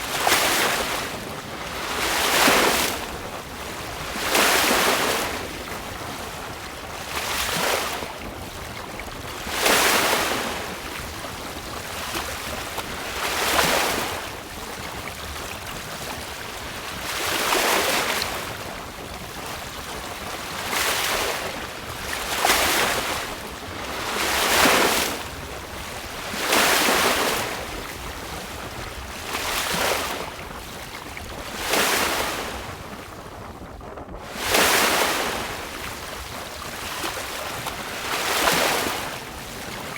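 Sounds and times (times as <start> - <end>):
sea water splashing against hull: 0.0 - 39.9
steady wind: 0.0 - 39.9.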